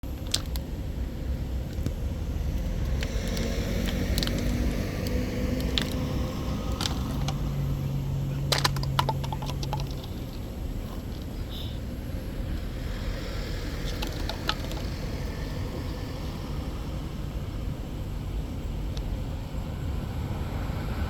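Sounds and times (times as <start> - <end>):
airliner landing rumble: 0.0 - 21.0
low hum: 0.0 - 21.0
clicks and rattles: 0.1 - 0.7, 2.9 - 7.4, 8.5 - 11.4, 13.8 - 15.0.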